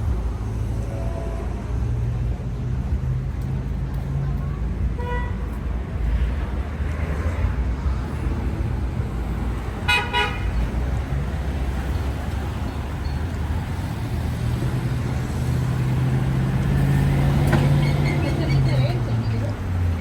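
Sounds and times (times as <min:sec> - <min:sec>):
street traffic rumbling: 0:00.0 - 0:20.0
vehicle engine hum: 0:00.0 - 0:20.0
car horn toot: 0:09.9 - 0:10.6.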